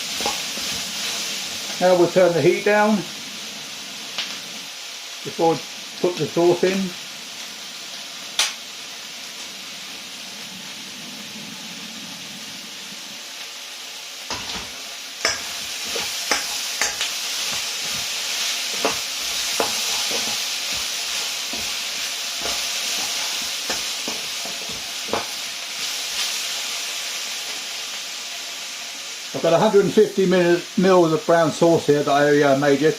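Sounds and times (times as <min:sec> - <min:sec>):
utensil scraping a pan: 0:00.0 - 0:01.6, 0:14.3 - 0:26.3
food sizzling in a pan: 0:00.0 - 0:32.9.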